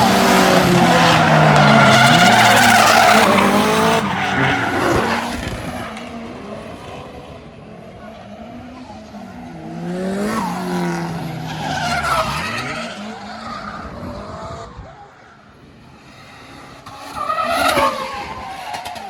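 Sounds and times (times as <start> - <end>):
tyres squealing: 0.0 - 5.3
car engine revving: 0.0 - 14.0.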